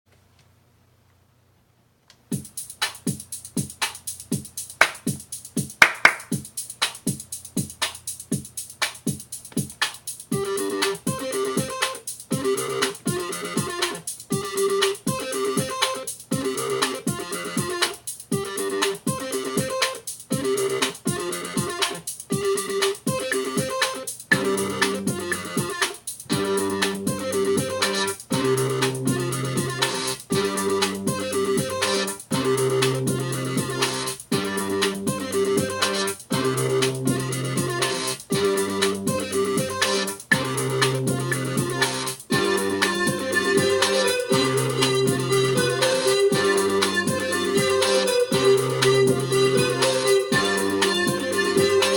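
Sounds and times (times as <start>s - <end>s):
pitched synth notes: 22.5s - 51.9s
bass line: 24.3s - 25.7s, 26.3s - 51.9s.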